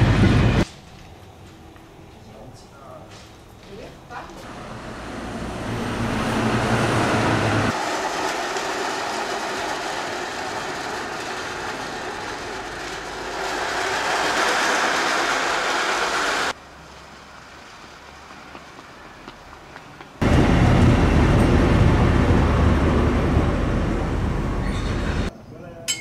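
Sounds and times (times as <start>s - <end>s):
train rushing on rails: 0.0s - 0.7s, 4.4s - 25.3s.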